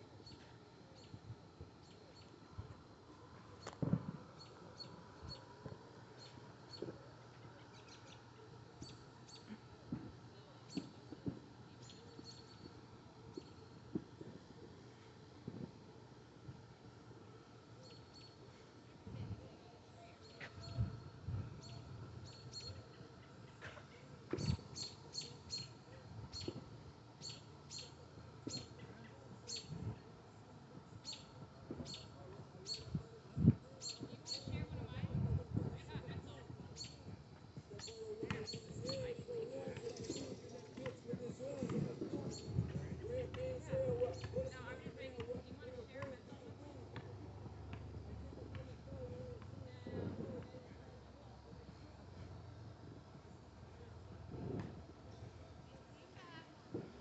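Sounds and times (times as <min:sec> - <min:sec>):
bird chirping: 0:21.6 - 0:23.4, 0:24.4 - 0:26.6, 0:27.2 - 0:28.8, 0:37.8 - 0:42.7.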